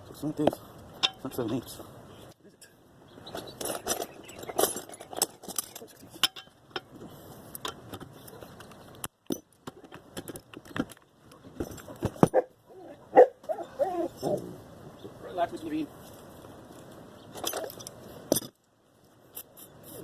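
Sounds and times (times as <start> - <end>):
metal hand tools clinking: 3.4 - 6.9, 17.4 - 18.6.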